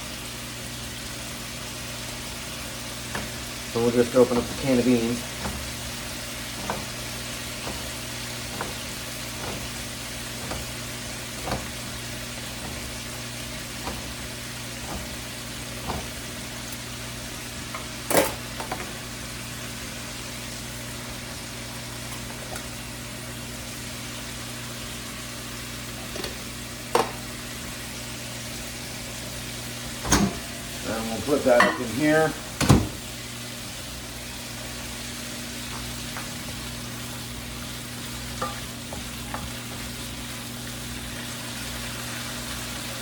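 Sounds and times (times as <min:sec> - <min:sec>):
chicken sizzling in a frying pan: 0:00.0 - 0:43.0.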